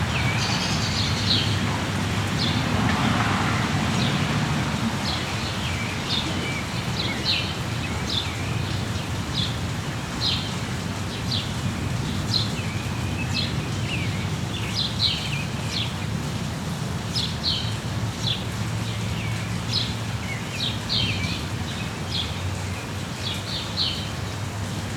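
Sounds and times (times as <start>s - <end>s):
birds chirping: 0.0s - 9.6s
rain hissing: 0.0s - 24.9s.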